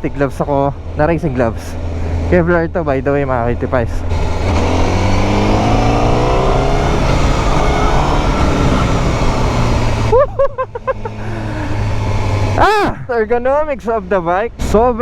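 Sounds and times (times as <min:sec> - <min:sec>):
motorcycle engine accelerating: 0:00.7 - 0:12.8
loud wind rush: 0:04.0 - 0:10.2.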